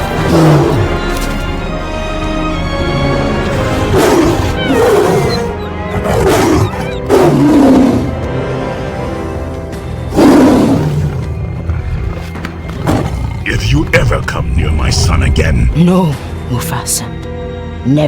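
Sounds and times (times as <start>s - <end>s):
lion roaring: 0.0s - 1.3s, 3.4s - 15.4s
orchestral film music: 0.0s - 18.0s.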